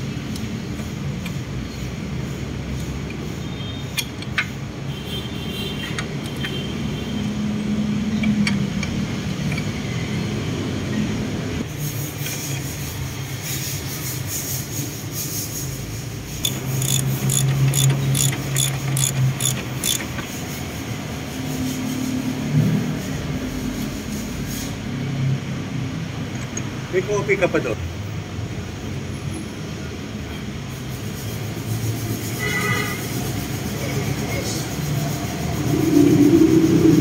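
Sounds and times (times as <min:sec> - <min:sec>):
hand tools clicking on metal: 0:03.8 - 0:04.6, 0:08.2 - 0:09.8, 0:16.4 - 0:20.3.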